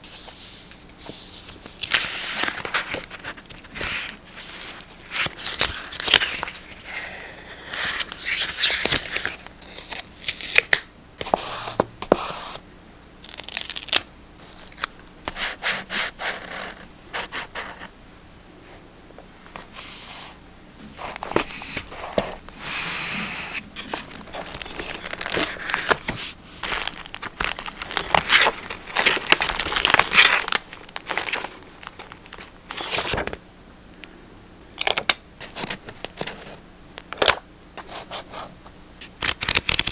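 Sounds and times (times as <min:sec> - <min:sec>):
paper rustling and tearing: 0:20.9 - 0:33.3.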